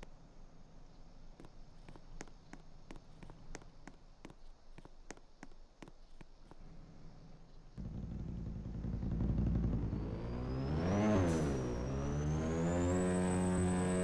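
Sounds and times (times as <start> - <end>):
atv engine starting and revving: 7.8 - 14.0.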